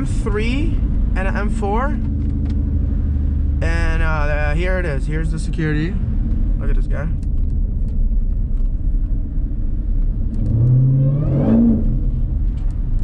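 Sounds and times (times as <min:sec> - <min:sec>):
car engine rumbling and accelerating: 0:00.0 - 0:13.0
rising supercharger whine: 0:08.5 - 0:13.0.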